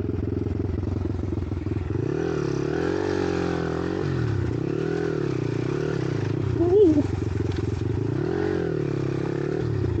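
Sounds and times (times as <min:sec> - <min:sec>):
small engine idling and revving: 0:00.0 - 0:10.0.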